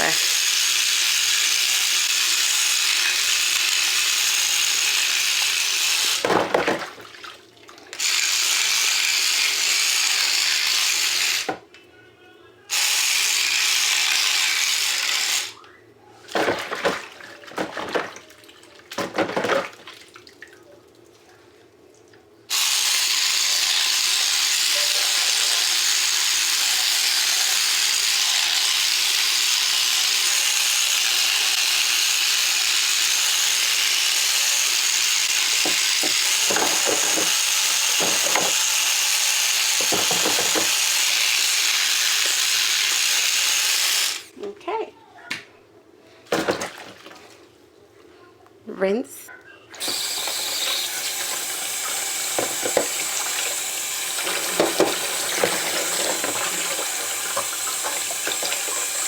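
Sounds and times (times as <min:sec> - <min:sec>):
tap running water into sink: 0:18.9 - 0:19.9, 0:35.3 - 0:38.7, 0:39.7 - 0:40.9, 0:49.8 - 0:59.0.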